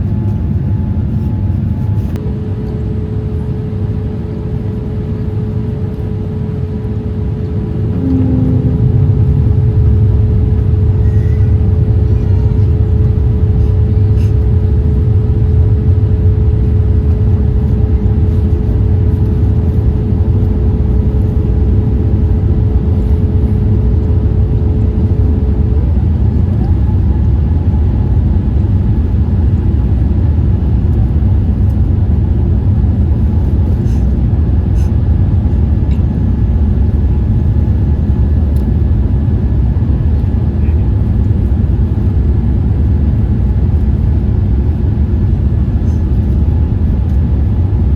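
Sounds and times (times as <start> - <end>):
airliner cabin rumble: 0.0 - 47.9
faint engine tones: 0.0 - 47.9.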